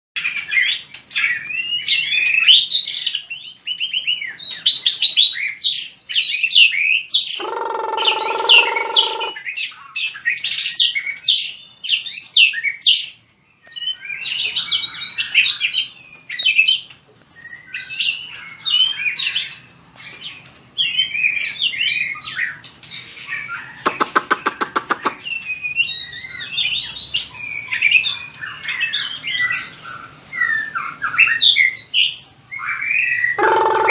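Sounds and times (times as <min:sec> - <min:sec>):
bird singing whistled phrases: 0:00.6 - 0:13.0.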